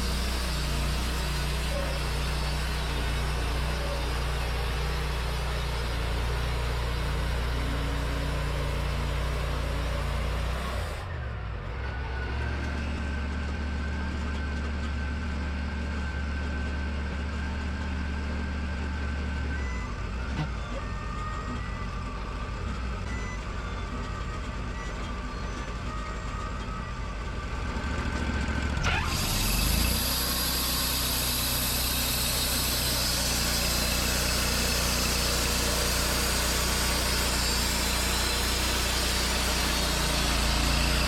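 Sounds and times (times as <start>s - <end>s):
saw blade cutting log: 0.0s - 6.3s, 28.8s - 41.0s
engine droning: 0.0s - 41.0s.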